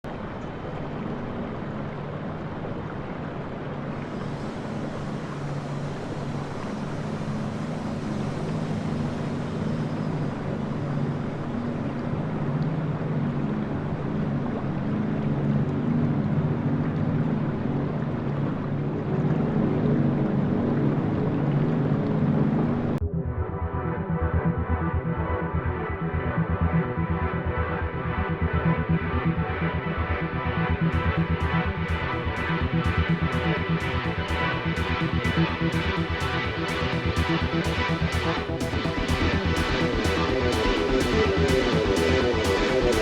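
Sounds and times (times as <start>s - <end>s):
water noise: 0.0s - 23.0s, 26.9s - 43.0s
wind: 0.0s - 23.0s
ship engine droning: 0.1s - 43.0s.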